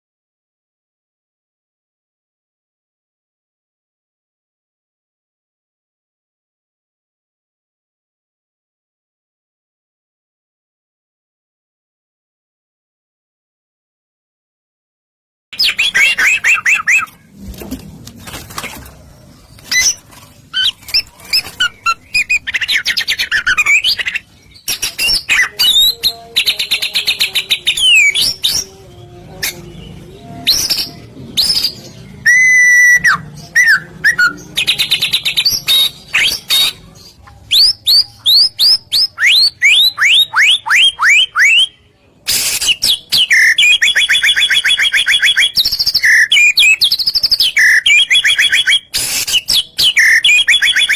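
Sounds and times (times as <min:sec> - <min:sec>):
bird singing trills and whistles: 0:15.6 - 0:17.2, 0:19.6 - 0:28.8, 0:29.4 - 0:36.9, 0:37.5 - 0:50.9.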